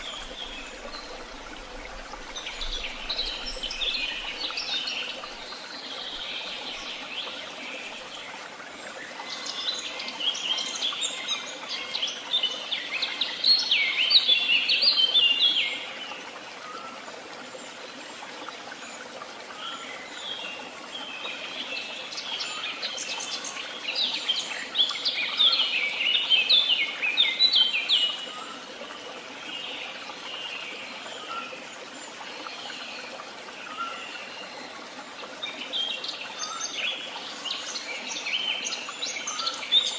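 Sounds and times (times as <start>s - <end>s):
songbird twittering song: 0.0s - 16.9s, 35.4s - 39.9s.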